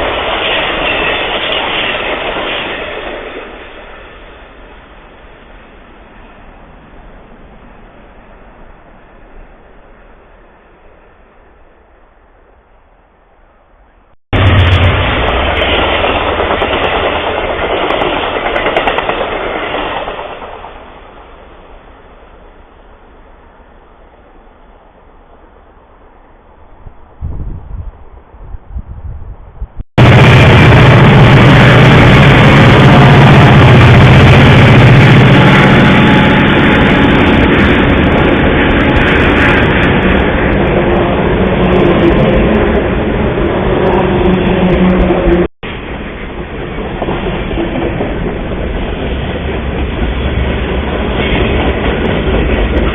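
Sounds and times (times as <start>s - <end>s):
train wheels clattering on rails: 0.0s - 4.7s, 14.4s - 21.6s, 30.0s - 52.9s
diesel locomotive engine drone: 0.0s - 27.2s, 29.4s - 52.9s
low train rumble: 0.0s - 52.9s.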